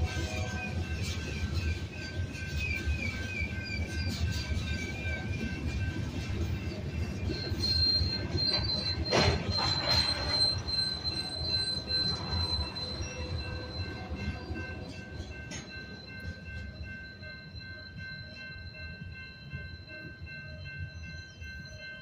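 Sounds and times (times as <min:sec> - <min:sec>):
high wheel squeal: 0:00.0 - 0:17.0
freight cars rolling: 0:00.0 - 0:17.2
crossing warning bell ringing: 0:00.0 - 0:22.0.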